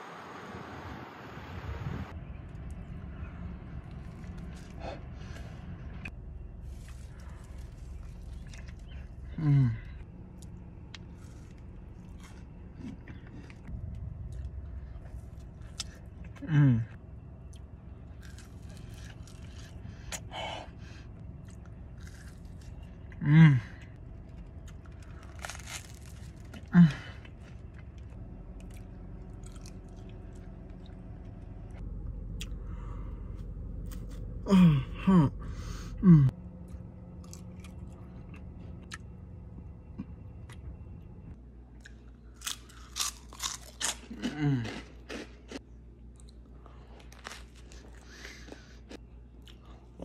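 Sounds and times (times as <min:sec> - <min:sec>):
steady low hum: 0:00.0 - 0:50.0
person biting and chewing: 0:18.2 - 0:20.3, 0:21.4 - 0:22.9, 0:24.6 - 0:26.7, 0:27.3 - 0:30.9, 0:33.4 - 0:34.3, 0:41.8 - 0:46.4.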